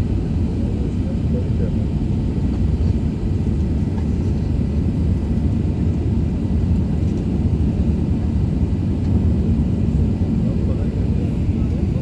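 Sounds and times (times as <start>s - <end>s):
airplane engines rumbling in cabin: 0.0s - 12.0s.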